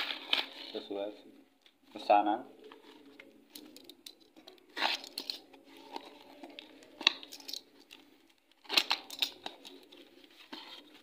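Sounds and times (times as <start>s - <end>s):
packaging tearing and crinkling: 4.7s - 7.6s, 8.5s - 9.9s.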